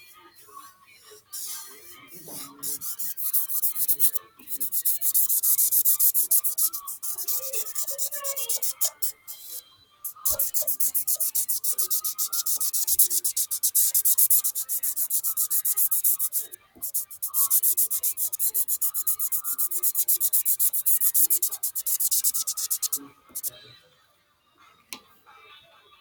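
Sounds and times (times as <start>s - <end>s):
scribbling on paper: 1.4s - 1.7s, 2.3s - 23.5s.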